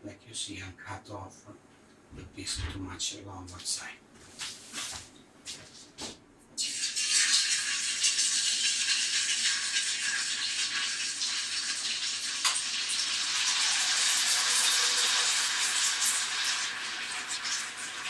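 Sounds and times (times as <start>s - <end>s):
deep-frying sizzle in oil: 6.6s - 18.0s.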